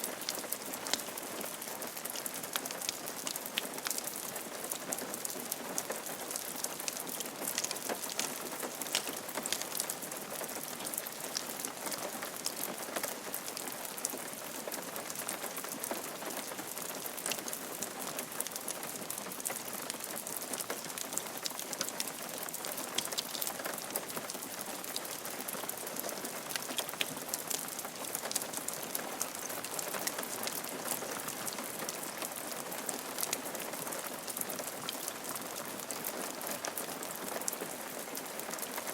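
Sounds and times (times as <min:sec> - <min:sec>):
rain falling on a roof: 0:00.0 - 0:38.9.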